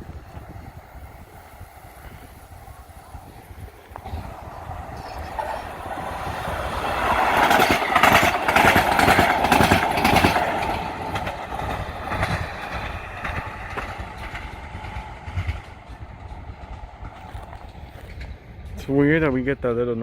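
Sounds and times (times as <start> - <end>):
wheels clacking over rail joints: 0.0 - 19.9
light rail train passing: 0.0 - 20.0.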